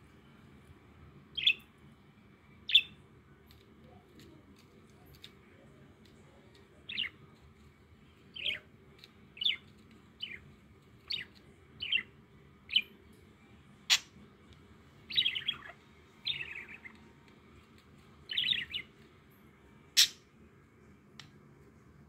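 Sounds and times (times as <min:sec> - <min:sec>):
pet bird chirping: 0:01.3 - 0:01.7, 0:02.6 - 0:03.0, 0:06.2 - 0:07.3, 0:08.3 - 0:13.0, 0:13.9 - 0:14.2, 0:15.0 - 0:17.1, 0:18.3 - 0:19.0, 0:20.0 - 0:20.2.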